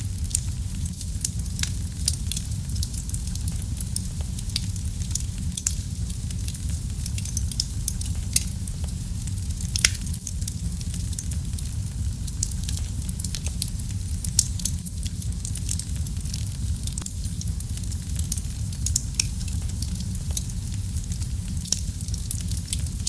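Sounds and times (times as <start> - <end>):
wood fire crackling and rumbling: 0.0 - 23.0.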